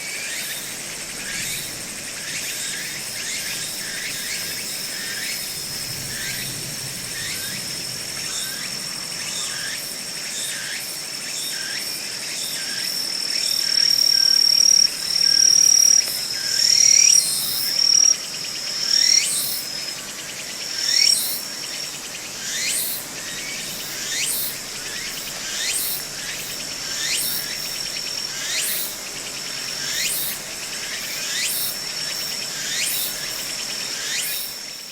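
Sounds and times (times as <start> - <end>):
insect high-pitched trill: 7.1 - 34.9.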